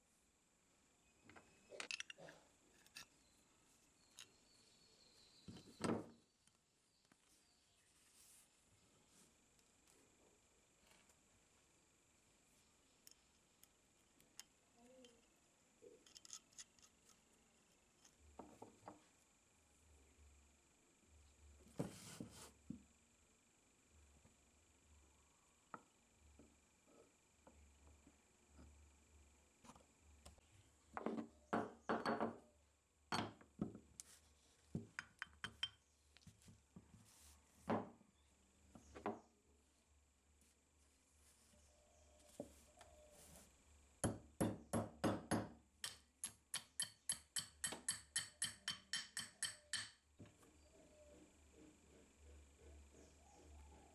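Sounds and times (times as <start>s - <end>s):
small metal parts clicking: 1.7s - 3.2s, 16.0s - 17.3s.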